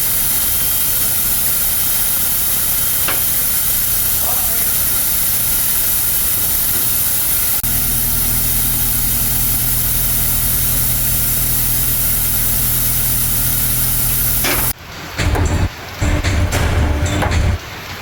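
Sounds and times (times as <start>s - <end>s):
loud hissing spray: 0.0s - 14.8s
low motor hum: 4.8s - 17.6s.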